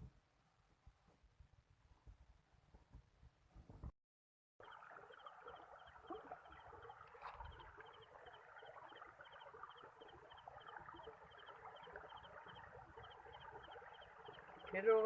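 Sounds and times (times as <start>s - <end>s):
small animal chattering calls: 4.6s - 15.0s.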